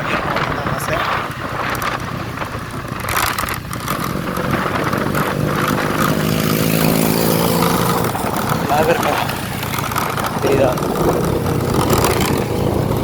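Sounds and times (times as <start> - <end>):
motorcycle engine hum: 0.0 - 13.0
wind rushing over microphone: 0.0 - 13.0.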